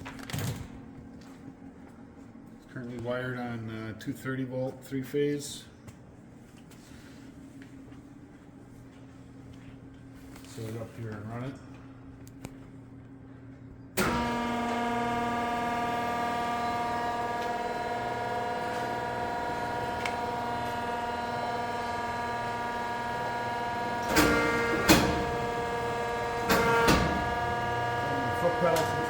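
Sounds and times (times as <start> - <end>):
press brake motor hum and whine: 11.7 - 29.0.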